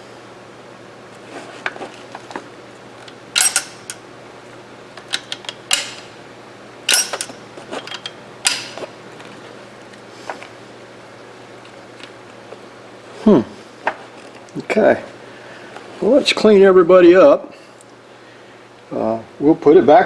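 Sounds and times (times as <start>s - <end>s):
metal gun parts clicking: 3.0s - 4.0s, 5.0s - 6.1s, 6.9s - 8.9s
metal parts clacking with rattle: 3.0s - 4.0s, 5.0s - 6.1s, 6.9s - 8.9s.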